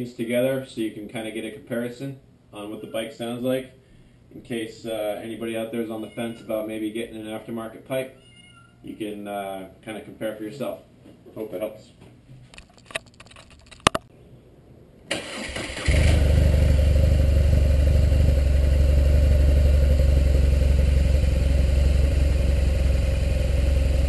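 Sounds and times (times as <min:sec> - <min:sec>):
motorcycle engine starting and idling: 0:15.1 - 0:24.0.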